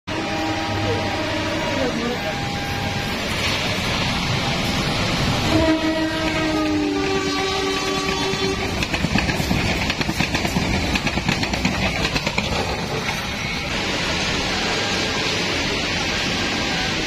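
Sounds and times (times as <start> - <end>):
train horn: 0.1 - 3.2, 5.4 - 8.8
train wheels clattering over joints: 7.6 - 14.2.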